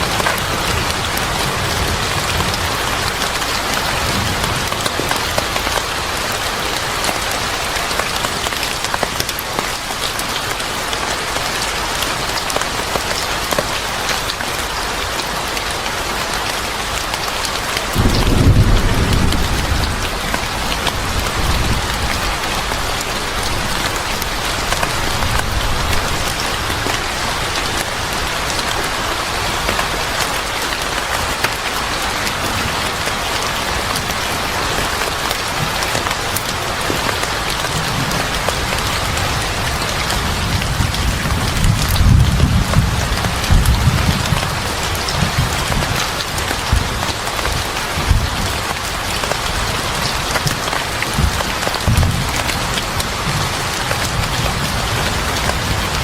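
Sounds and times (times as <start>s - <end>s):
heavy rain falling: 0.0s - 56.0s
thunder rumbling: 17.9s - 26.5s, 50.2s - 56.0s.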